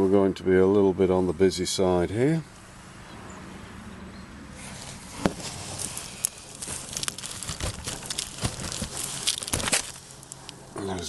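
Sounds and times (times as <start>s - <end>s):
packaging crinkling and tearing: 5.2s - 10.6s
sharp clicks and knocks: 5.2s - 10.6s.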